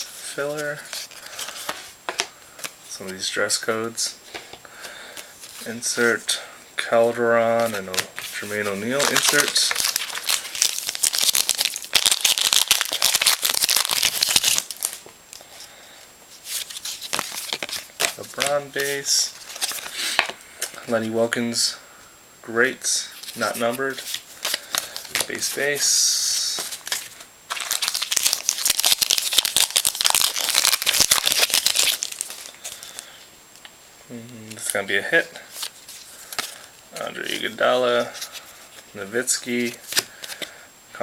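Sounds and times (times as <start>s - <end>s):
cards being handled and flipped: 0.2s - 3.3s, 7.4s - 15.7s, 16.4s - 21.1s, 23.2s - 33.0s, 35.5s - 40.5s
wrapper crinkling: 7.6s - 15.4s, 16.4s - 20.3s, 23.2s - 33.1s.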